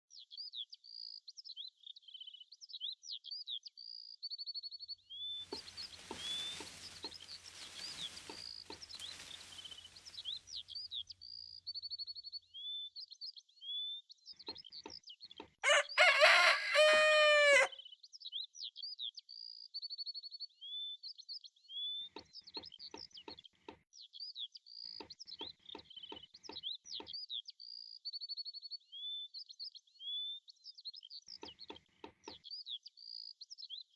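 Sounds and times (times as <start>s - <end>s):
small birds chirping: 0.1s - 33.9s
rooster crowing: 15.6s - 17.8s.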